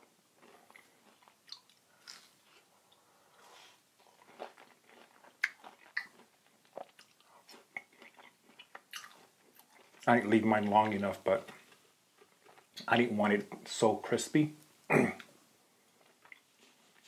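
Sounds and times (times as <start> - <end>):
chewing crunchy food: 0.3 - 12.9, 15.9 - 17.0.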